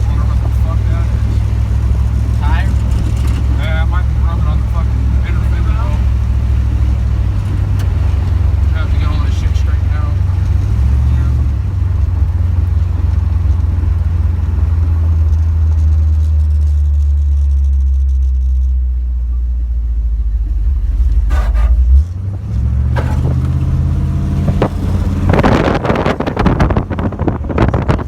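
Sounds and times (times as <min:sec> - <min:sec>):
car engine revving: 0:00.0 - 0:28.0
gusty noise: 0:20.5 - 0:28.0.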